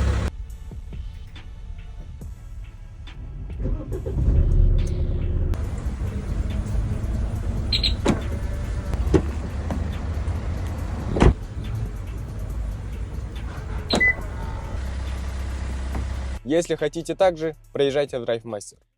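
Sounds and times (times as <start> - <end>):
car engine starting and idling: 0.0 - 0.3, 3.2 - 16.5.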